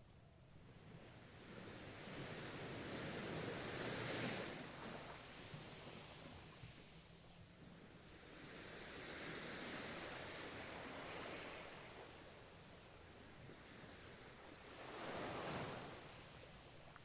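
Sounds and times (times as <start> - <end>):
ocean surf washing in: 13.5 - 16.4.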